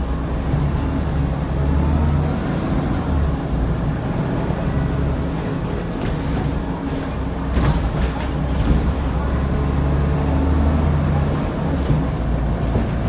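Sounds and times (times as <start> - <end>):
bus diesel engine running: 0.0 - 13.0
bus knocks and rattles: 0.0 - 13.0.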